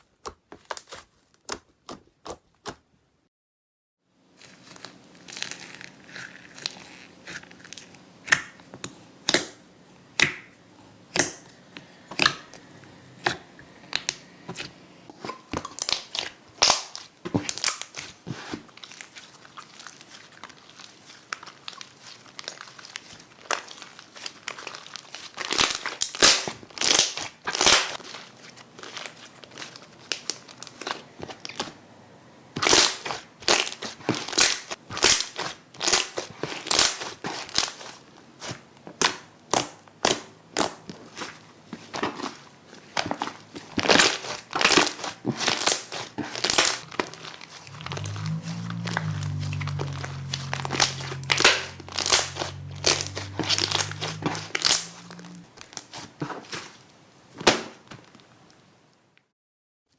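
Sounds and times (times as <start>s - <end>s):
slime crackling and popping: 43.8s - 56.0s.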